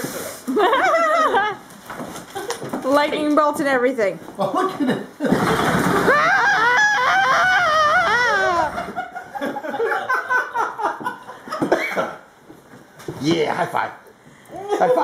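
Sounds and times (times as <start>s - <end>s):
people laughing and whooping: 0.5s - 1.6s, 5.4s - 11.5s
wavering voice: 6.1s - 9.0s.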